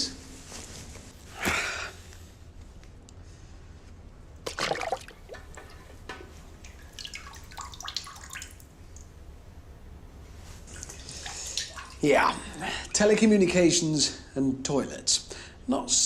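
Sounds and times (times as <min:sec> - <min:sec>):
splash in toilet water: 0:04.4 - 0:05.5, 0:06.6 - 0:08.7, 0:11.0 - 0:12.0
water drips and small splashes: 0:04.4 - 0:09.2, 0:10.6 - 0:13.1.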